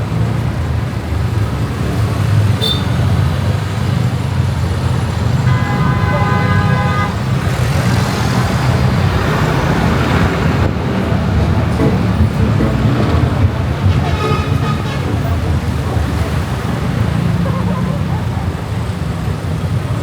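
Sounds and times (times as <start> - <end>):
road and wind noise: 0.0 - 20.0
vehicle horn honking: 2.6 - 3.0, 5.4 - 7.4, 11.8 - 15.6.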